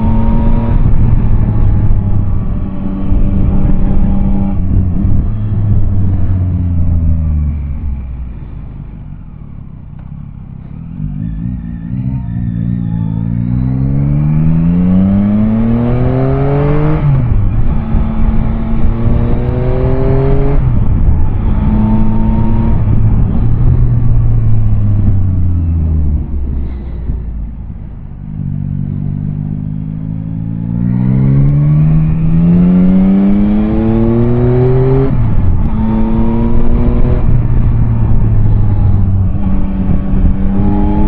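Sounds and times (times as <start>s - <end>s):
motorcycle engine accelerating: 0.0s - 41.0s
wind and road noise: 0.0s - 41.0s.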